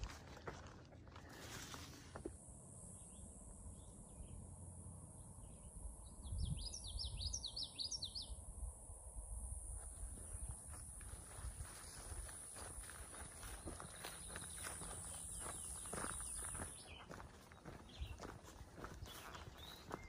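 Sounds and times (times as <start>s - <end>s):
bird singing: 2.8s - 8.5s, 12.9s - 20.0s
soft bird chirps: 3.0s - 8.4s, 13.1s - 20.0s.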